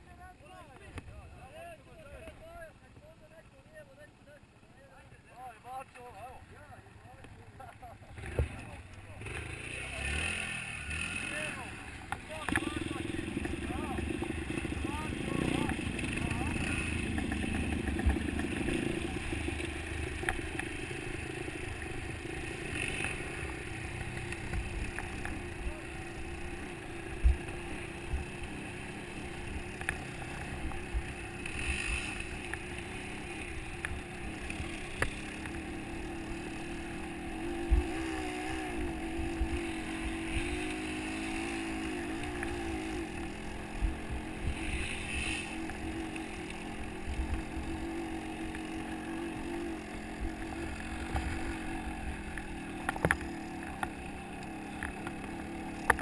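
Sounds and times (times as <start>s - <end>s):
motocross bike engine running: 0.0s - 56.0s.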